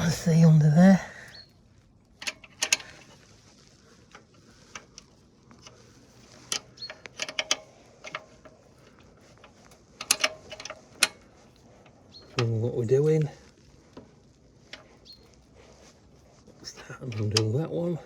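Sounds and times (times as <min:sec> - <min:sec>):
hand tools clicking on metal: 0:02.2 - 0:03.2, 0:04.1 - 0:13.3, 0:16.7 - 0:17.7.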